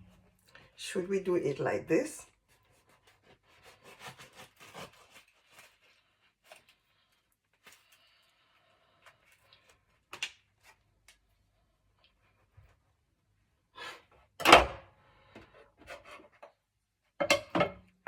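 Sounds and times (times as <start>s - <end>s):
knife cutting bread: 2.6s - 6.8s.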